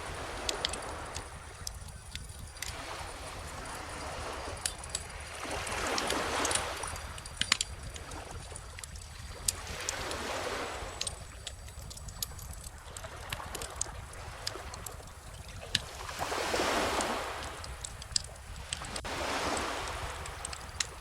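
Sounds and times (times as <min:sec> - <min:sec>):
ocean waves washing in: 0:00.0 - 0:11.6, 0:12.6 - 0:21.0
wood fire crackling: 0:06.0 - 0:10.0, 0:10.9 - 0:15.9, 0:16.8 - 0:21.0.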